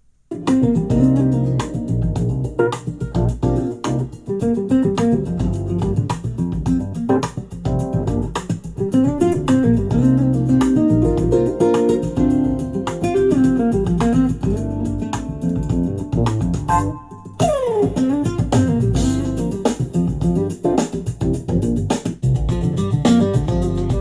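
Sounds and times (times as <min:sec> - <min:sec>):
guitar and bass music: 0:00.3 - 0:24.0.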